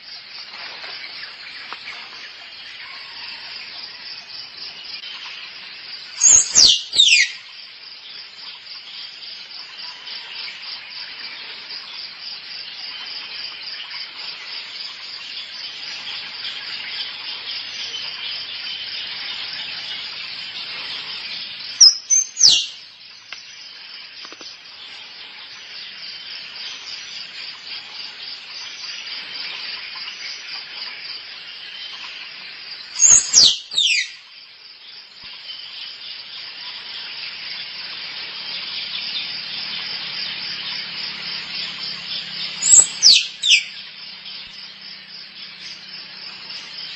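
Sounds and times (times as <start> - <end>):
squirrel squeaking: 6.2 - 7.3, 21.8 - 22.7, 33.0 - 34.1, 42.6 - 43.7.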